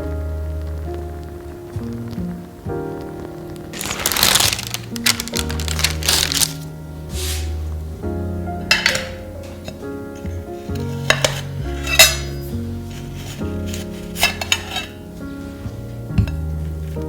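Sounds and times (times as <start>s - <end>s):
soft background music: 0.0s - 17.0s
utensils clinking against dishes: 8.7s - 9.8s, 10.8s - 12.5s, 14.1s - 15.0s.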